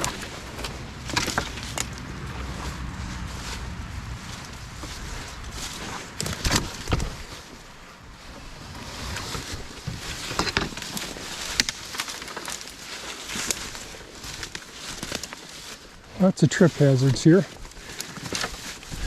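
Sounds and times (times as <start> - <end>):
wind noise on microphone: 0.0 - 11.8, 18.7 - 19.0
dead branches snapping: 0.0 - 16.0, 17.5 - 19.0
dry twigs rustling and crackling: 0.0 - 19.0.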